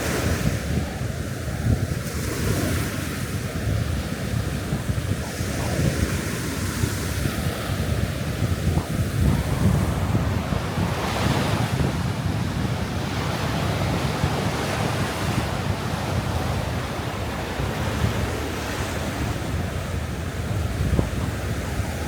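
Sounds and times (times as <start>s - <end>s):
surf washing onto sandy beach: 0.0s - 22.0s
wind buffeting microphone: 0.0s - 22.0s.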